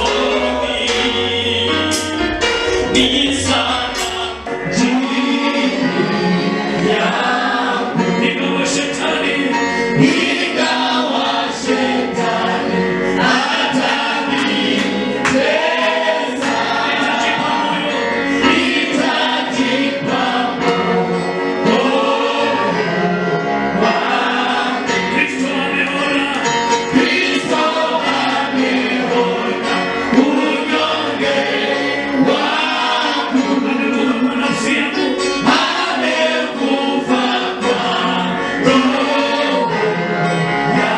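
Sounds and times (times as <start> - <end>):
choir singing gospel music: 0.0 - 40.9.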